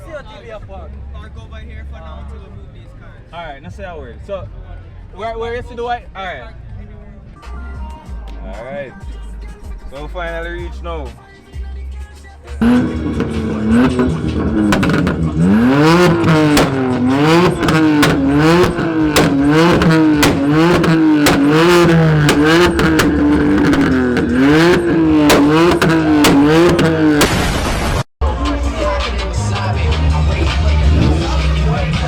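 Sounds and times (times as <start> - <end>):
car engine revving: 12.6 - 27.5, 28.5 - 32.0.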